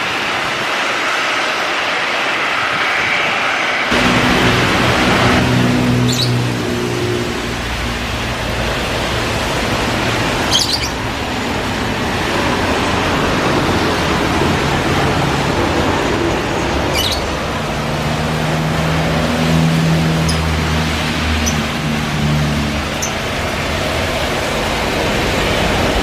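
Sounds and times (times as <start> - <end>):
loud steady rushing noise: 0.0 - 26.0
birds chirping: 4.0 - 7.5, 10.0 - 11.4, 16.5 - 18.0, 19.5 - 23.6.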